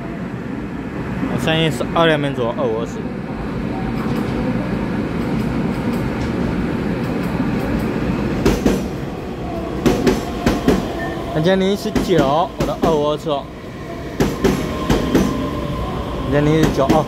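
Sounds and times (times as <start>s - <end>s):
train wheels rumbling on rails: 3.6s - 17.0s.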